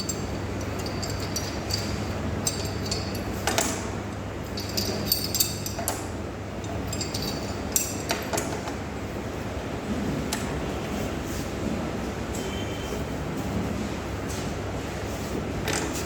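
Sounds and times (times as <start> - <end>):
metal parts and tools clinking: 0.0 - 8.5
steady low hum: 0.0 - 11.8.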